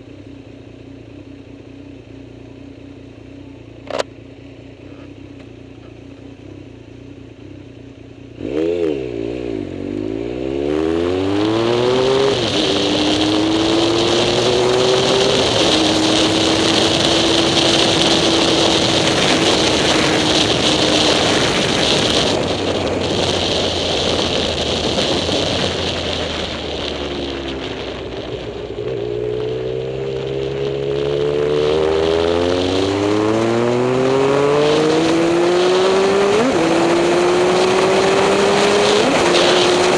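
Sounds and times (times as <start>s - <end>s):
engine idling: 0.0s - 8.4s
wind and road noise: 0.0s - 39.9s
car engine accelerating through gears: 8.3s - 39.9s.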